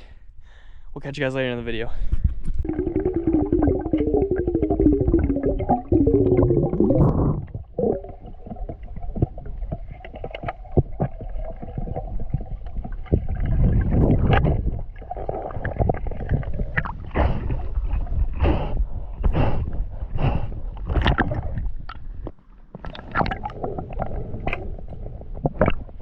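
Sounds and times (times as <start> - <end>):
muffled underwater rumble: 2.1 - 26.0
underwater clicks and knocks: 2.4 - 17.1, 20.8 - 26.0.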